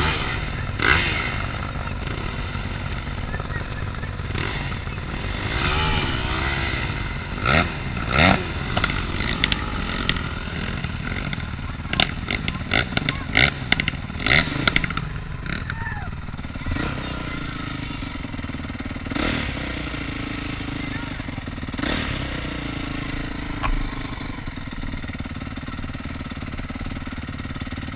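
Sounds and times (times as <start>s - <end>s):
dirt bike engine revving: 0.0s - 27.9s.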